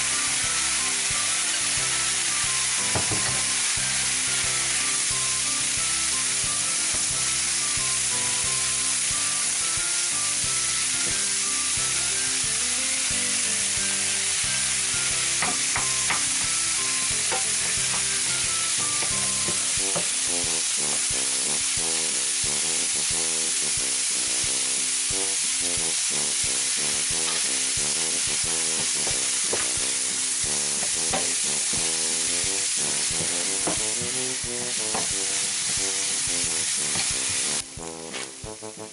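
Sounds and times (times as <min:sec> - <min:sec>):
sizzling in a frying pan: 0:00.0 - 0:38.9
wooden spatula scraping pan: 0:32.8 - 0:38.4.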